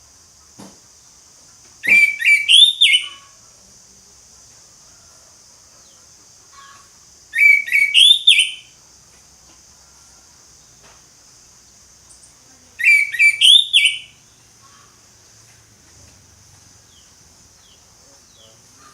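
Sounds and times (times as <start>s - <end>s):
faint steady high hiss: 0.0s - 18.9s
thrush singing whistled phrases: 1.8s - 3.2s, 7.4s - 8.7s, 12.8s - 14.2s.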